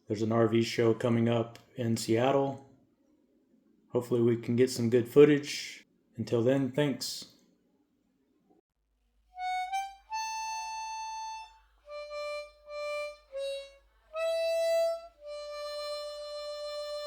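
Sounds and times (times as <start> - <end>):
wind instrument melody: 9.4 - 17.0.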